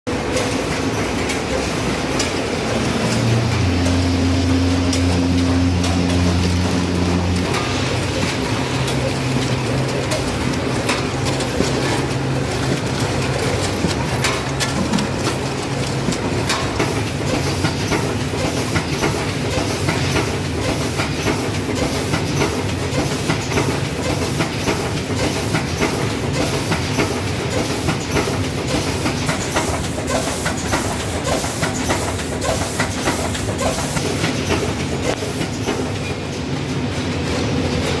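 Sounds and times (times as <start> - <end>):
machine hum: 0.1 - 18.4
rapid machine clicking and clatter: 0.1 - 38.0.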